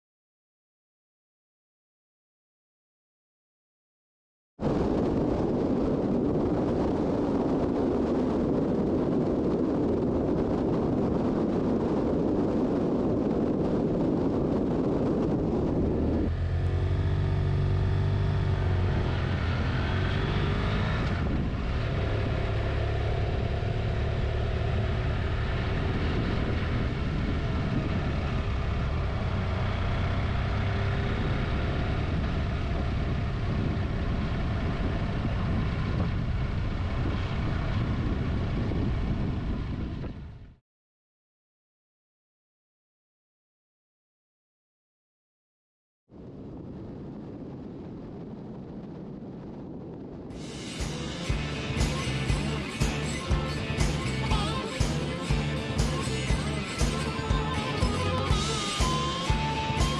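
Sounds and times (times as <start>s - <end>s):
wind rushing over microphone: 4.6s - 40.6s, 46.1s - 59.9s
motorcycle engine running: 15.2s - 40.6s, 50.4s - 59.9s.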